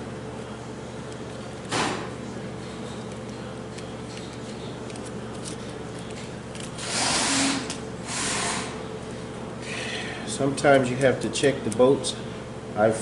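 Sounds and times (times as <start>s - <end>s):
steady hum: 0.0s - 13.0s
handling noises on metal parts: 2.7s - 7.8s.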